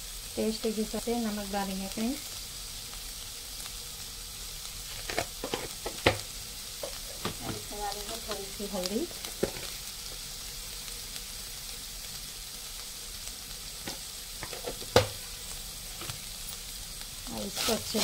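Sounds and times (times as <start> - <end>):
meat sizzling in a pan: 0.0 - 18.0
utensil clacking against pan: 13.9 - 15.2.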